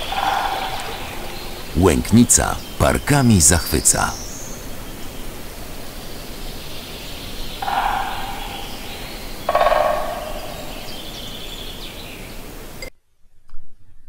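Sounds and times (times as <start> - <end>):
large bird calling: 0.0 - 12.6
steady rushing hiss: 0.0 - 12.9.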